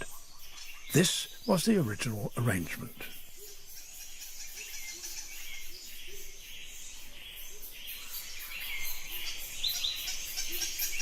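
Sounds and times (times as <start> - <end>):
high insect hum: 0.0 - 11.0
small birds chirping: 0.0 - 11.0.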